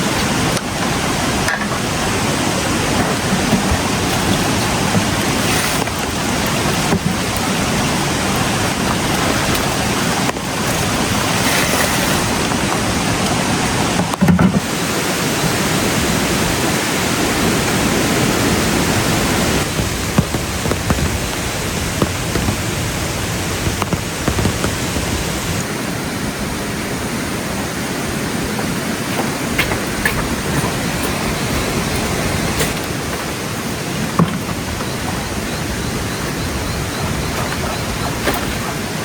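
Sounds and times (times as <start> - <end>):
rushing water: 0.0 - 39.0.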